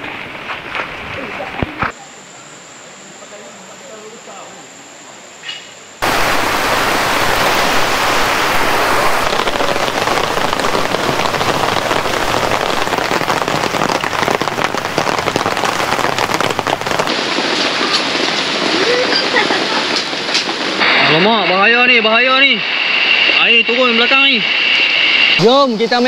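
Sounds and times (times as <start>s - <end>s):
heavy rain pouring: 6.0s - 26.0s.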